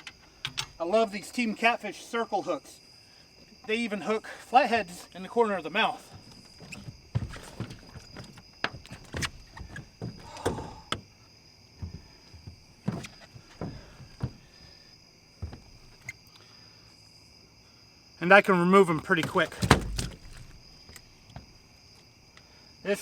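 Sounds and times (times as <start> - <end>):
crickets trilling: 0.0 - 23.0
fish thumping in a boat: 6.2 - 11.0, 19.0 - 21.5.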